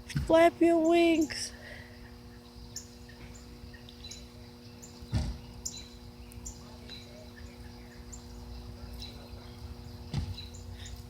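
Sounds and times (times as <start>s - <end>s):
steady low hum: 0.0s - 11.0s
birds chirping: 0.1s - 11.0s
thump: 5.1s - 5.4s, 10.1s - 10.4s.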